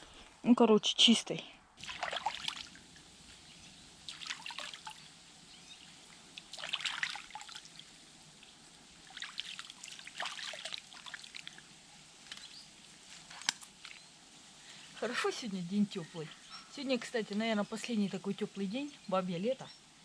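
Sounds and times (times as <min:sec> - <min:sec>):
hands splashing in water: 0:01.8 - 0:02.8, 0:04.1 - 0:05.0, 0:06.4 - 0:07.8, 0:09.0 - 0:11.6.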